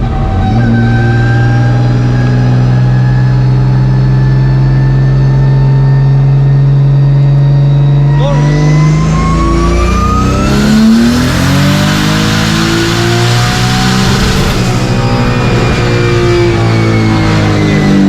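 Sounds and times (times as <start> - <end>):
turbocharged car engine revving: 0.0 - 18.0.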